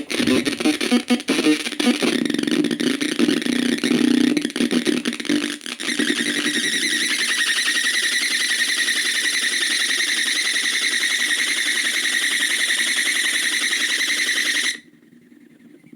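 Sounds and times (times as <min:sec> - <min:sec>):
high-pitched fluttering buzz: 0:00.0 - 0:02.6, 0:05.8 - 0:14.9.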